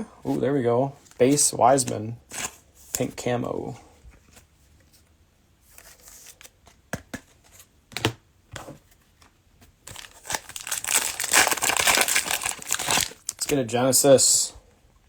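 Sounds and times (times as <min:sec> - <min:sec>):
cellophane wrapper tearing: 0:09.9 - 0:13.6.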